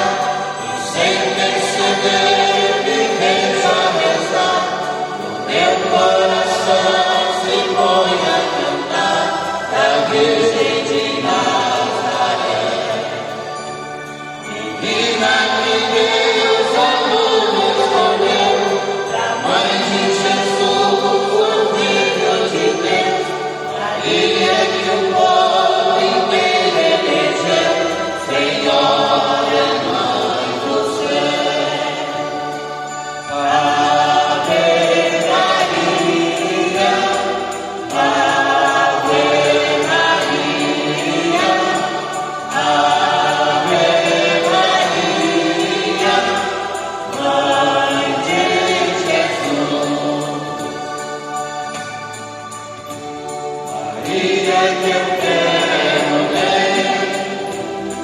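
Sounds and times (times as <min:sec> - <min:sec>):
choir singing a hymn: 0:00.0 - 0:58.0.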